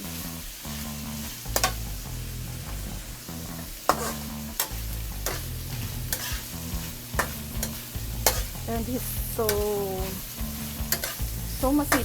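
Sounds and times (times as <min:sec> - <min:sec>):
vegetables sizzling in a pan: 0:00.0 - 0:12.0
utensil clicking against pan: 0:01.5 - 0:01.8, 0:03.9 - 0:06.4, 0:07.1 - 0:08.6, 0:10.8 - 0:12.0.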